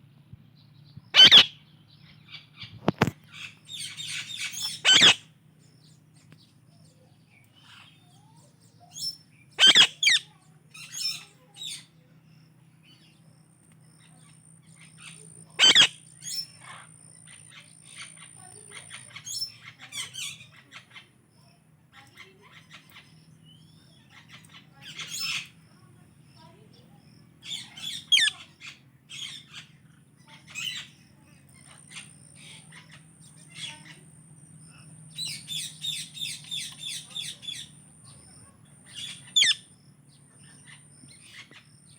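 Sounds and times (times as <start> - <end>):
parakeets squawking: 1.1 - 1.6, 3.3 - 5.3, 8.9 - 11.9, 14.8 - 21.0, 23.9 - 25.8, 27.4 - 34.0, 34.7 - 39.7
parakeets chirping and chattering: 1.1 - 13.2, 13.9 - 41.9.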